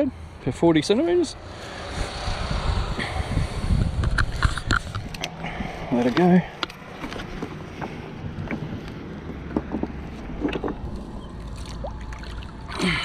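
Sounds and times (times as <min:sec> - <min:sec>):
wind rumbling on microphone: 0:01.5 - 0:06.2.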